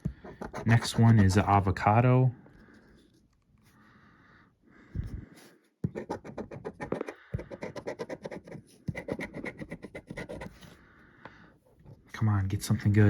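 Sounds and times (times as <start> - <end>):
scratching lottery ticket: 0.3 - 1.4, 6.0 - 10.6.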